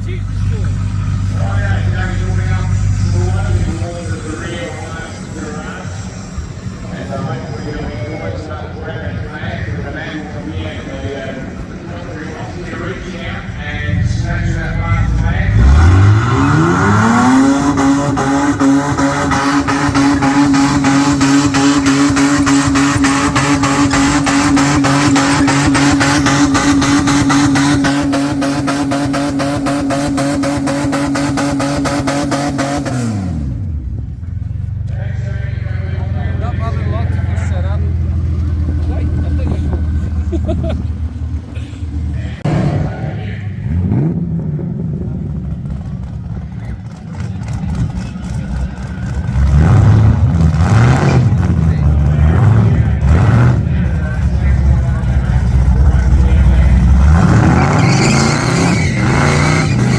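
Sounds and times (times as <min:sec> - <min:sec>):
car engine at high revs stuttering: 0:12.3 - 0:34.6, 0:35.3 - 0:59.9.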